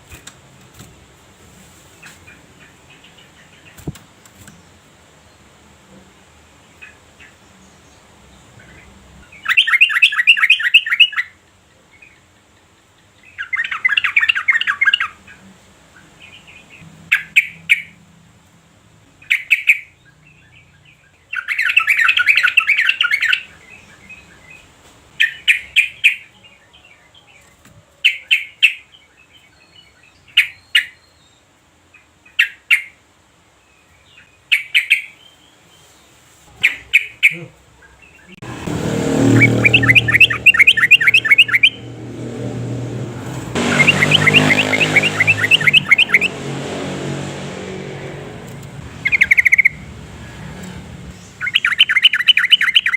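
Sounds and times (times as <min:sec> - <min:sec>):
bird chattering calls: 0:39.2 - 0:41.8, 0:43.6 - 0:46.3, 0:48.9 - 0:49.9, 0:51.3 - 0:52.9.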